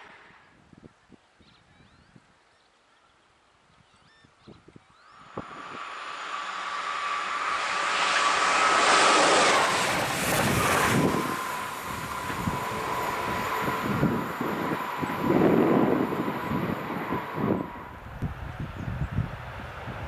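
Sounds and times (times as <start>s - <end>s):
wind buffeting the microphone: 3.7s - 8.7s, 9.5s - 20.0s
steady hum: 5.0s - 18.4s
distant train approaching: 5.0s - 20.0s
train passing at speed: 5.0s - 20.0s.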